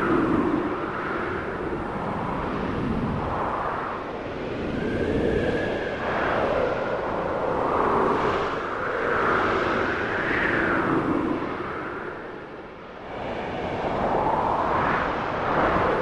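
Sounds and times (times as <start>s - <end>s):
wind howling and gusting: 0.0s - 16.0s.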